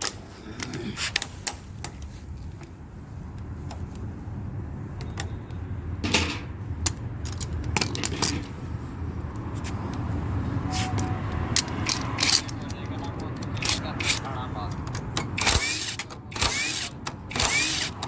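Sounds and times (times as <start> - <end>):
short metallic clatters: 10.7 - 16.5.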